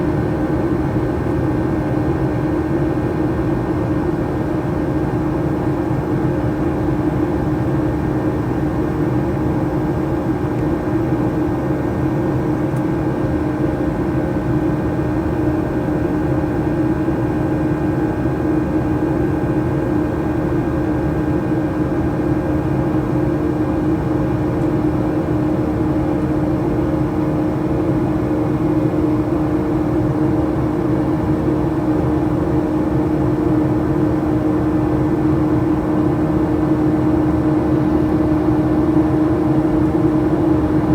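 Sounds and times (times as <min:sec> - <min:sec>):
airplane cabin engine drone: 0:00.0 - 0:40.9.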